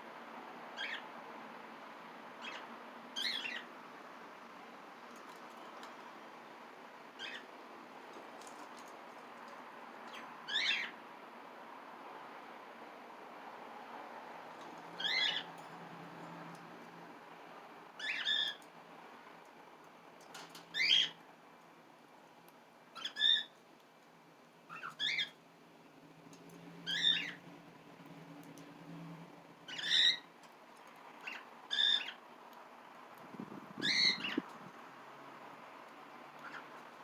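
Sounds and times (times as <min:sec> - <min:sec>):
cockatiel calling: 0:00.8 - 0:01.0, 0:02.4 - 0:03.7, 0:07.2 - 0:07.5, 0:10.1 - 0:11.0, 0:15.0 - 0:15.5, 0:18.0 - 0:18.6, 0:20.8 - 0:21.2, 0:23.0 - 0:23.6, 0:24.7 - 0:25.4, 0:26.9 - 0:27.4, 0:29.7 - 0:30.3, 0:31.2 - 0:32.2, 0:33.8 - 0:34.5, 0:36.4 - 0:36.7.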